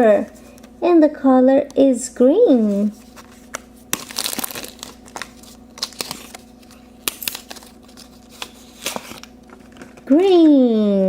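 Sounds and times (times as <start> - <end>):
plastic packaging crinkling: 2.6 - 10.9.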